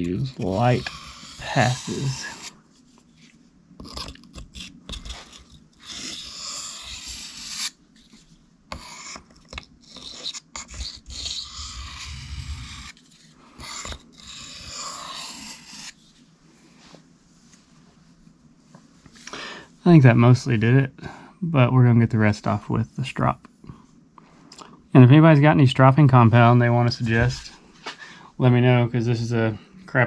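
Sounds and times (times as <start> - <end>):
knife scraping on whetstone: 0.0 - 2.6, 3.8 - 7.8, 9.8 - 13.0, 13.6 - 16.0.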